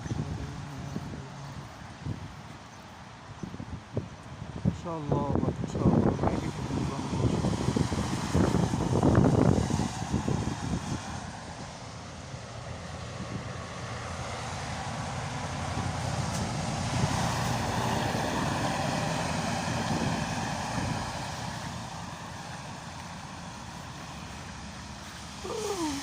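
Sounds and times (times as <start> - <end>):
vehicle passing on wet road: 5.4 - 26.0.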